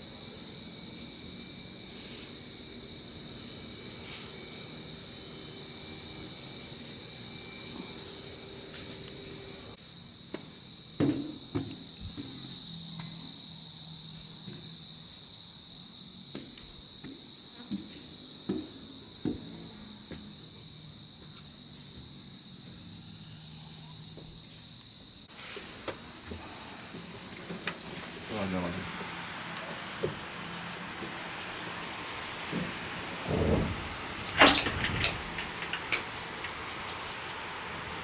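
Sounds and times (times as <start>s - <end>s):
crickets shrilling: 0.0s - 38.0s
knocks: 11.0s - 12.4s.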